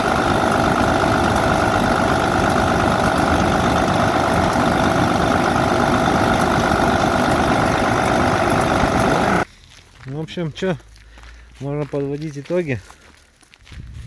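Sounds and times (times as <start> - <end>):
truck diesel engine idling: 0.0 - 9.4.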